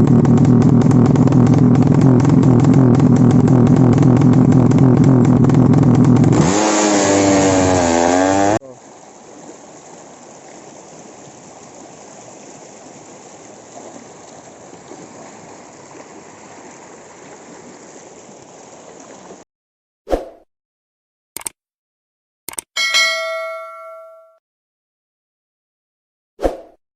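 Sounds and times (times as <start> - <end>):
motorcycle engine revving: 0.0 - 8.6.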